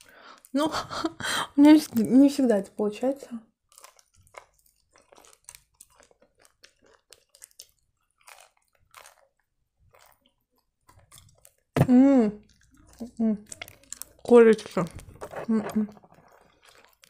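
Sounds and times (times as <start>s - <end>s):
chewing crisp fried food: 3.5s - 17.0s
wet mouth sounds: 3.8s - 17.0s.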